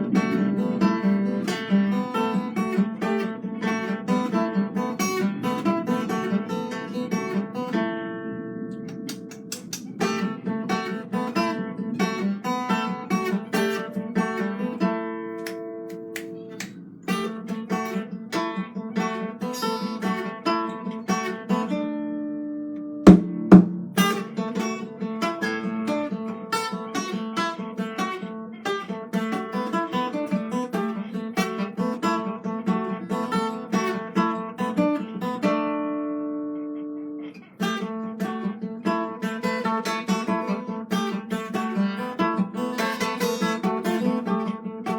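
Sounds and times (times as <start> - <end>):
fingerstyle acoustic guitar: 0.0 - 44.9
sharp knocks: 23.1 - 24.2.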